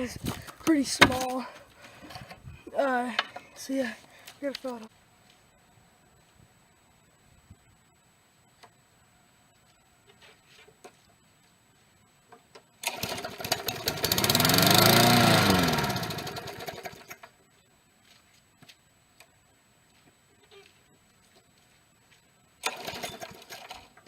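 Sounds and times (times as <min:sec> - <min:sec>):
lawn mower engine starting: 0:12.8 - 0:17.4, 0:22.6 - 0:24.0.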